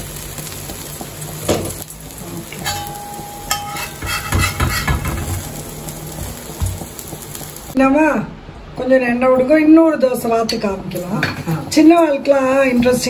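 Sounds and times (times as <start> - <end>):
dosa sizzling in oil: 0.0 - 7.8
metal spatula scraping pan: 2.6 - 5.7.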